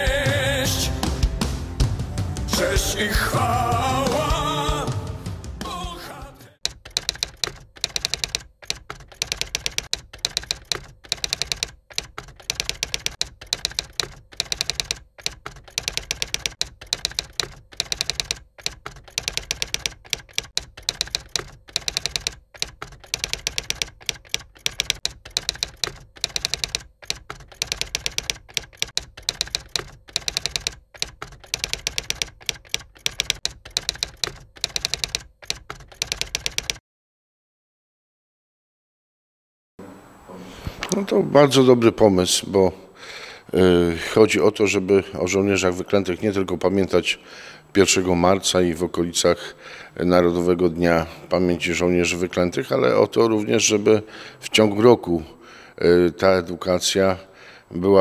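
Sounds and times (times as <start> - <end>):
typewriter keys clacking: 6.6 - 36.8.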